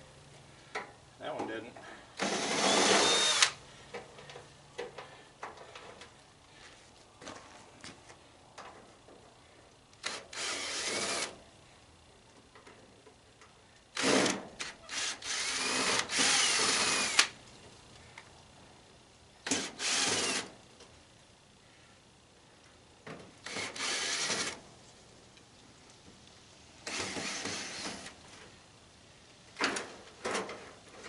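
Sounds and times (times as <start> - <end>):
power drill running: 2.2 - 3.6, 10.0 - 11.4, 14.0 - 17.3, 19.4 - 20.5, 23.4 - 24.6, 26.8 - 27.9.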